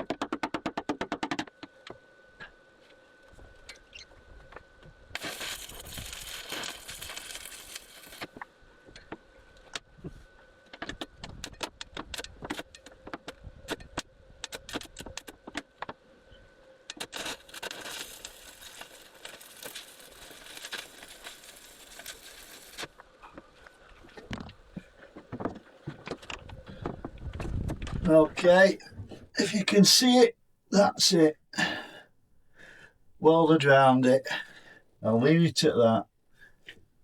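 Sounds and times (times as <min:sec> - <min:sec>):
arc welding crackling: 0:05.1 - 0:08.4, 0:16.9 - 0:24.3.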